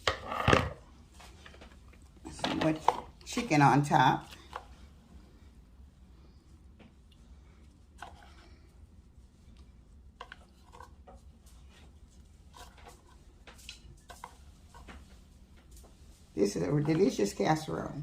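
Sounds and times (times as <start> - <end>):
utensil tapping and scraping dish: 0.0 - 4.7, 10.2 - 11.8, 12.5 - 17.6
low steady hum: 0.0 - 18.0.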